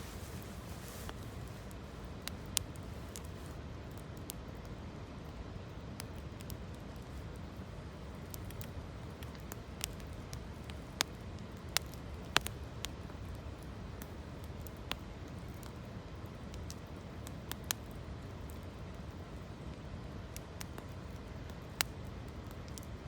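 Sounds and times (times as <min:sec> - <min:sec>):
campfire crackling: 0:00.0 - 0:23.0
sharp pops of fire: 0:08.3 - 0:13.3.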